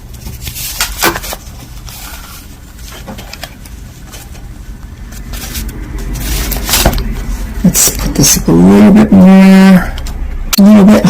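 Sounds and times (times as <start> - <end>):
items rustling and clicking: 0.0 - 7.6
steady low hum: 0.0 - 11.0.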